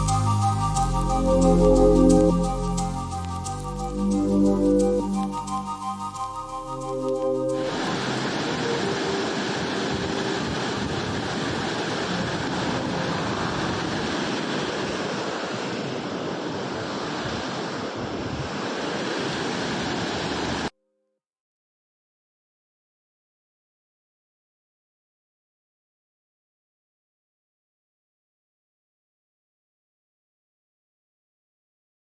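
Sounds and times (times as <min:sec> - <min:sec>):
waterfall rushing: 0:00.2 - 0:20.7.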